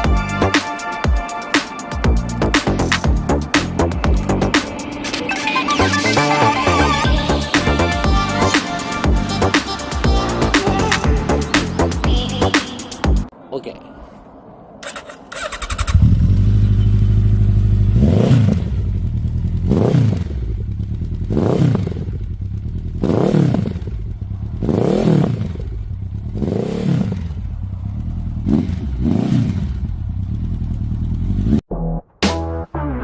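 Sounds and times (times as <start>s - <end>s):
motorcycle engine idling: 14.8s - 18.0s, 18.7s - 23.0s, 23.6s - 24.7s, 25.4s - 26.4s, 27.2s - 28.5s, 29.6s - 31.4s
engine revving blips: 14.8s - 31.6s.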